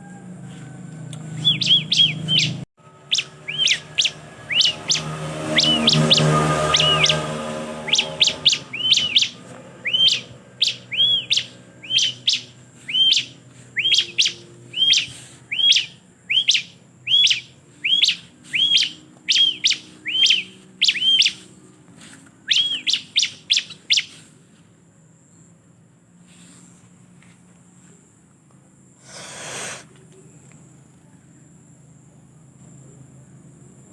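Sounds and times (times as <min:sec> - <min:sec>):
bird sharp chirps: 0:01.2 - 0:21.6, 0:22.4 - 0:24.3.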